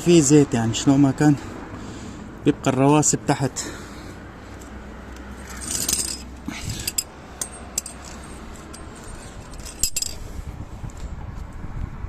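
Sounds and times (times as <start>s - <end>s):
metal tools clinking: 4.6s - 10.3s.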